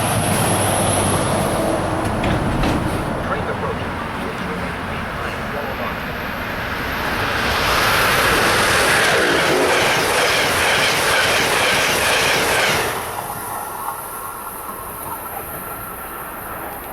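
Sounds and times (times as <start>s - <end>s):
train passing: 0.0s - 16.9s
wheels clicking over rail joints: 0.4s - 5.4s.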